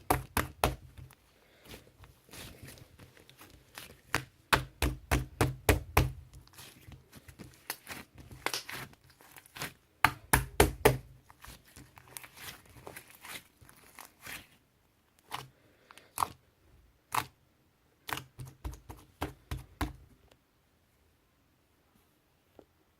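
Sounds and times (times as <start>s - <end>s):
slime crackling and popping: 2.3s - 14.6s.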